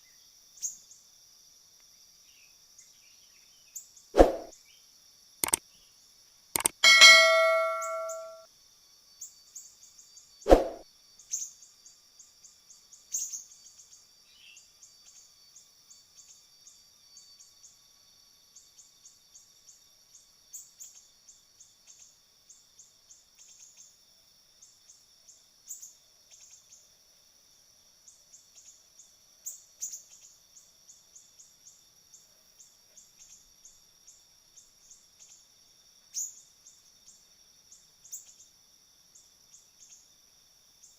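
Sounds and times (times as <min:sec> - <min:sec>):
high-pitched bird chirps: 0:06.6 - 0:08.4
sharp knock: 0:06.6 - 0:08.4
metallic clang: 0:06.8 - 0:08.4.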